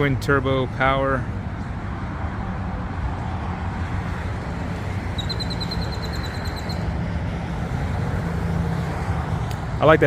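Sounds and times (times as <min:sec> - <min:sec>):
low rumble of vehicles: 0:00.0 - 0:10.0
small bird trilling: 0:05.2 - 0:06.9.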